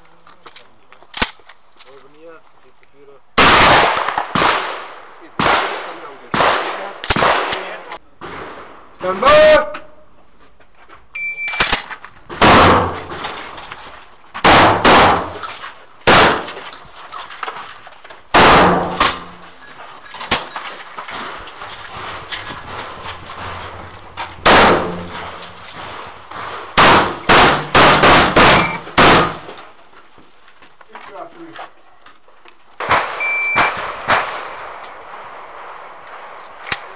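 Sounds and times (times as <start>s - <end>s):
shotgun shots: 3.4s - 8.8s, 11.6s - 13.4s, 14.4s - 16.7s, 18.3s - 19.6s, 22.6s - 29.6s, 32.8s - 34.8s
electronic timer beep: 11.2s - 11.6s, 33.2s - 33.7s.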